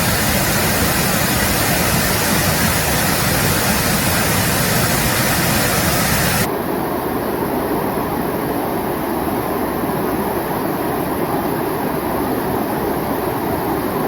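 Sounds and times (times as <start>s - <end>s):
stream water rushing: 0.0s - 6.5s.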